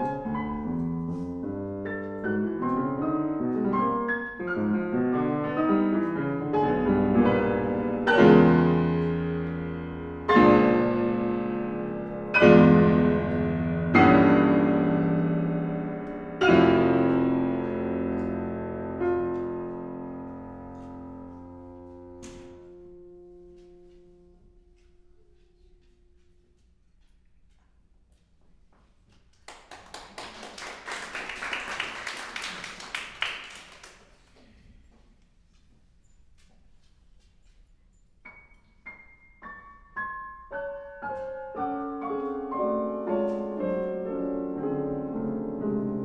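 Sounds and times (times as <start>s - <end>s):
piano playing: 0.0s - 25.3s, 38.2s - 46.0s.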